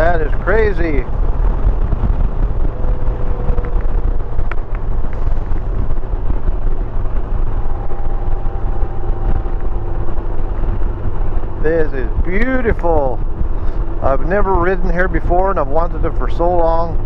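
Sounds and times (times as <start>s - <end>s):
motorcycle engine droning: 0.0s - 17.0s
road noise: 0.0s - 17.0s
wind rushing over microphone: 0.0s - 17.0s.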